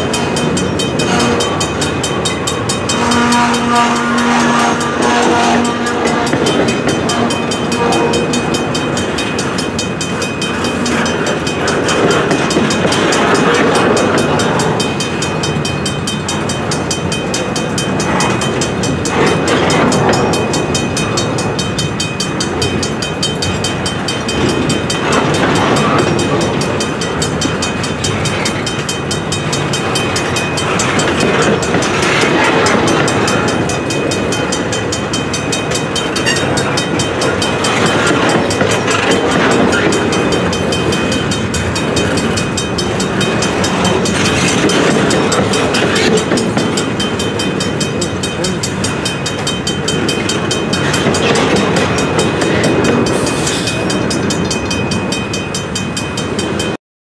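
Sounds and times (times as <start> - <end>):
crossing bell ringing: 0.0 - 56.8
train wheels rumbling over rails: 0.0 - 56.8.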